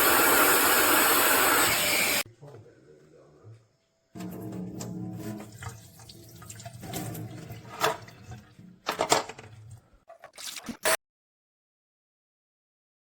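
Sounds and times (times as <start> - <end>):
water sloshing and gurgling: 5.1 - 8.9.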